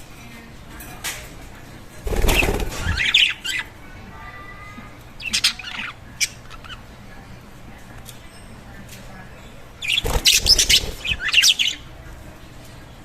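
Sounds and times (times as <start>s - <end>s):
wing flapping: 2.0s - 3.2s, 9.9s - 11.5s.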